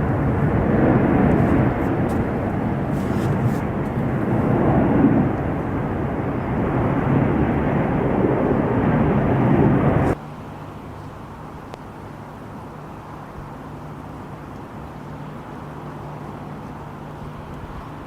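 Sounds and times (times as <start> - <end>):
jet airliner rushing noise: 0.0 - 10.2.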